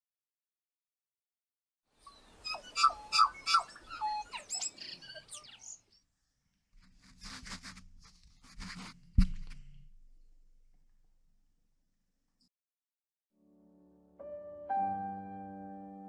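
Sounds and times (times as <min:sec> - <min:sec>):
small birds chirping: 0:02.0 - 0:06.1
rustling handling noises: 0:06.8 - 0:10.3
sharp knock: 0:09.1 - 0:09.9.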